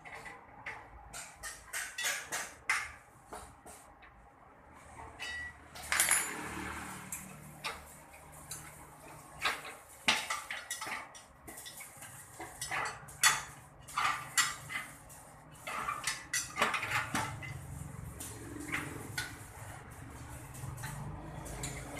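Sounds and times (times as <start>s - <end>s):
metallic clinks and clatters: 5.3s - 8.8s.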